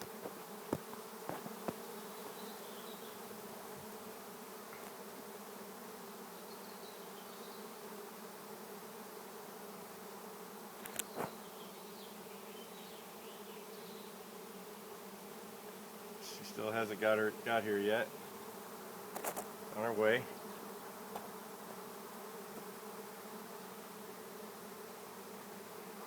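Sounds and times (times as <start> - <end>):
bee swarm buzzing: 0.0 - 26.0.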